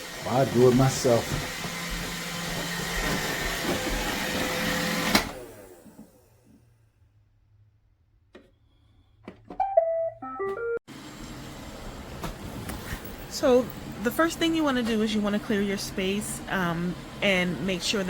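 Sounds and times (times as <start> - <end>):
electronic tune of beeps: 9.6 - 10.8.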